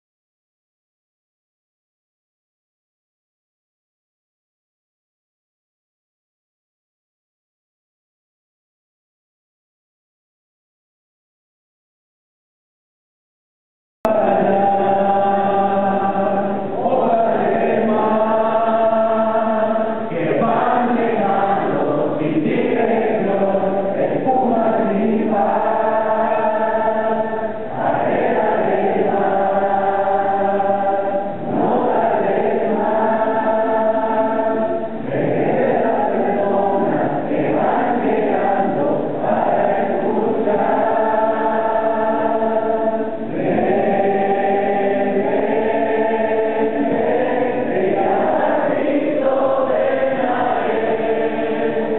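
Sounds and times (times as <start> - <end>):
choir singing a hymn: 14.1 - 51.9.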